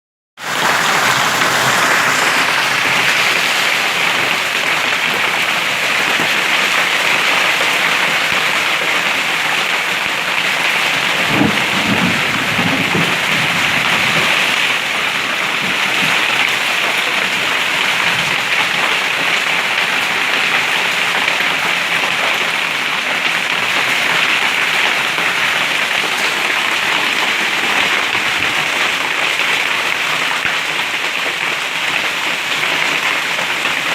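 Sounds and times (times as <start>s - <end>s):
hail and heavy rain pelting: 0.4s - 33.9s
low rumble: 0.6s - 5.1s.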